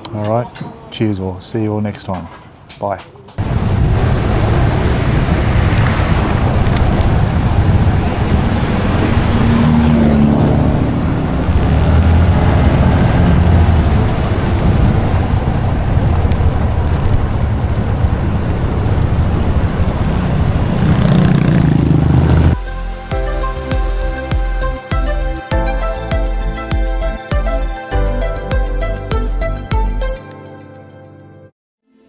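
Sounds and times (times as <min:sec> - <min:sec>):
wind rumble on microphone: 0:03.4 - 0:22.6
motorbike engine running: 0:06.4 - 0:22.7.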